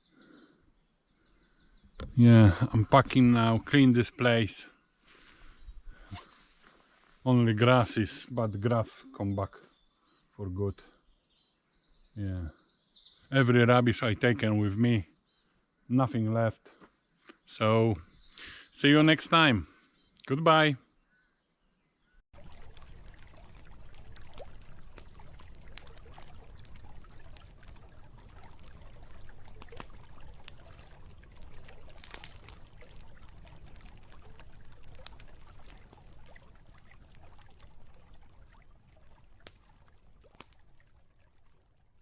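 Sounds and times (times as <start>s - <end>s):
river water trickling and splashing: 22.3s - 42.0s.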